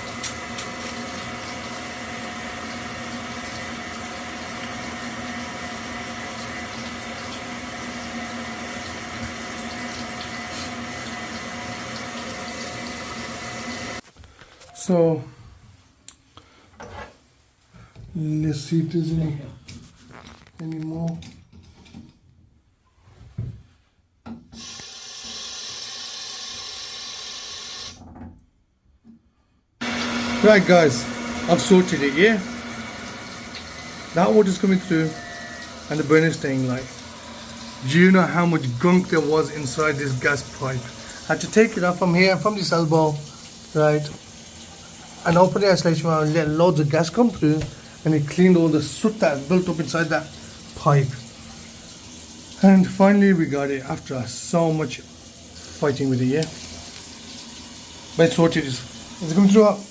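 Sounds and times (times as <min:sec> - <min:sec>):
boiler hum: 0:00.0 - 0:14.0, 0:29.8 - 0:59.9
tap water running: 0:00.0 - 0:14.0, 0:24.3 - 0:28.0, 0:29.8 - 0:59.9.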